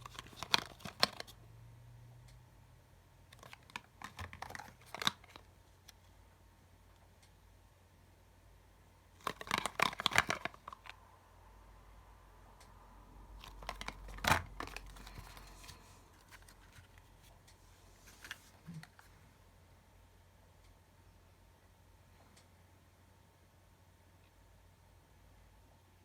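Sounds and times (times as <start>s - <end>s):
packaging crinkling: 0.0s - 1.3s, 3.3s - 5.5s, 9.2s - 11.0s, 13.4s - 17.1s.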